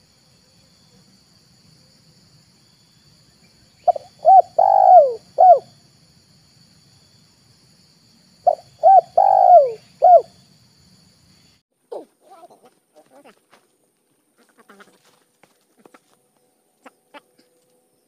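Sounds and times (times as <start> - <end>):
high insect whine: 0.0 - 11.6
dove cooing: 3.9 - 5.7, 8.5 - 10.3.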